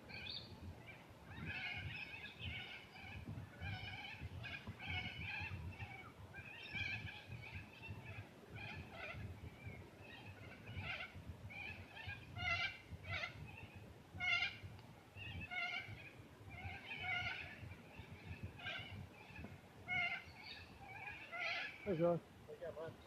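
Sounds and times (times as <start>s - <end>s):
birds making harsh calls: 0.1s - 22.2s.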